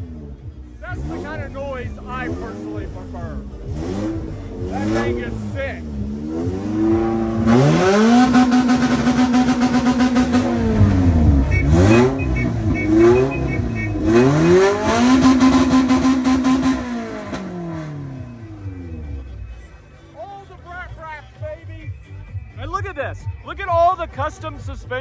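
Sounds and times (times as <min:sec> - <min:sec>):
engine revving: 0:00.0 - 0:20.0.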